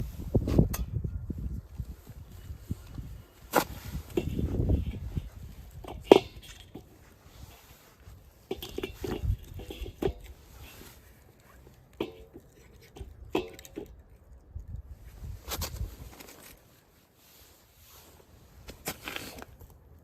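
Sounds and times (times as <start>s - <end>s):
firewood knocking and rustling: 3.5s - 14.0s.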